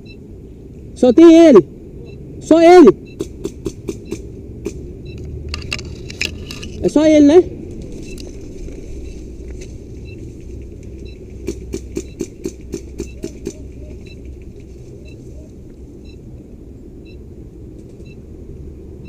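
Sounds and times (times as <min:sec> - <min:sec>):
electronic timer beeps: 0:00.0 - 0:00.2, 0:02.9 - 0:03.3, 0:04.0 - 0:04.2, 0:10.0 - 0:10.3, 0:11.0 - 0:11.3, 0:12.0 - 0:12.3, 0:13.0 - 0:14.3, 0:15.0 - 0:16.2, 0:17.0 - 0:17.2, 0:18.0 - 0:18.2.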